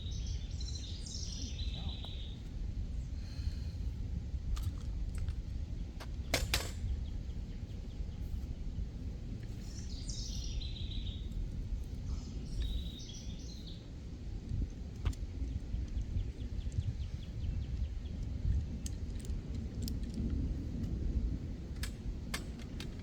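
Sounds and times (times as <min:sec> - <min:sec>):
songbird calling: 0:00.0 - 0:02.5, 0:09.6 - 0:11.4, 0:12.1 - 0:13.9
low wind rumble: 0:00.0 - 0:23.0.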